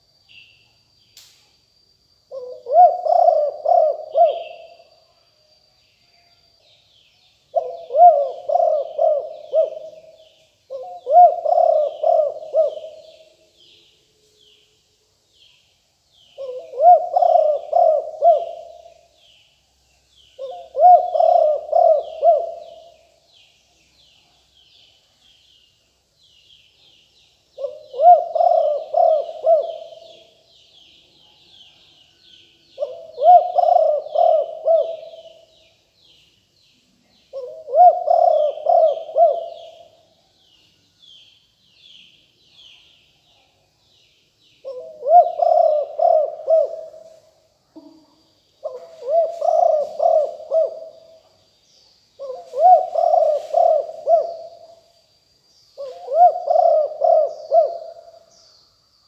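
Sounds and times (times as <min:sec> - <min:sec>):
dove cooing: 0:02.3 - 0:04.9, 0:07.5 - 0:13.3, 0:16.4 - 0:19.1, 0:20.4 - 0:23.0, 0:27.6 - 0:30.4, 0:32.8 - 0:35.5, 0:37.3 - 0:40.0, 0:44.6 - 0:48.0, 0:48.6 - 0:51.2, 0:52.2 - 0:54.8, 0:55.8 - 0:58.3
small birds chirping: 0:06.5 - 0:59.0.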